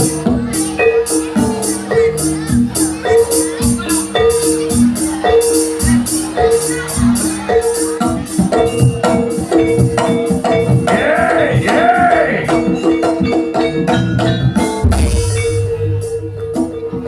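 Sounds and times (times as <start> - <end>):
drum: 0.0 - 17.0.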